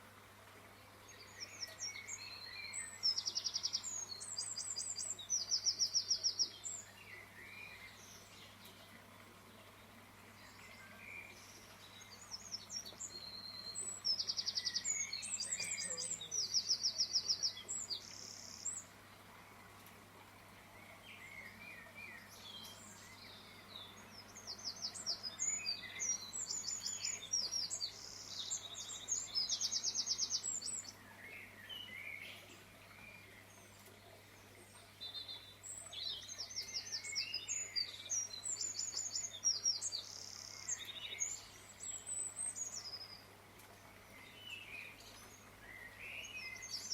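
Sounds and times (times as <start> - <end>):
soft bird chirps: 0.0 - 46.9
songbirds trilling: 0.0 - 46.9.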